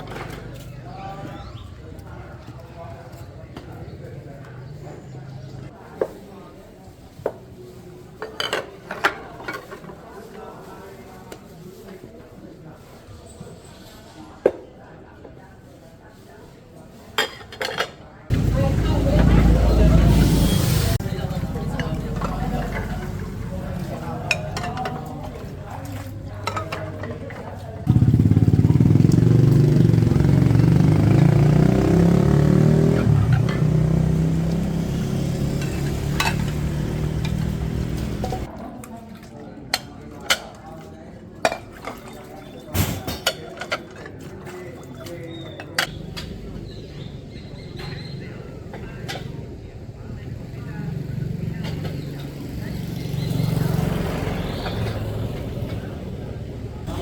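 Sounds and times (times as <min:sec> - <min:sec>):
vehicle engine running: 0:18.3 - 0:24.3, 0:26.2 - 0:38.5.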